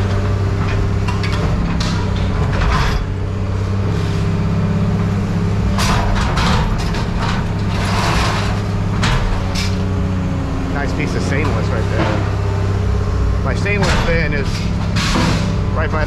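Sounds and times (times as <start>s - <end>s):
heavy machine engine running: 0.0s - 16.0s
scrap metal clanking: 5.6s - 9.9s, 13.6s - 15.8s
metal crashes: 5.7s - 9.9s, 13.5s - 16.0s.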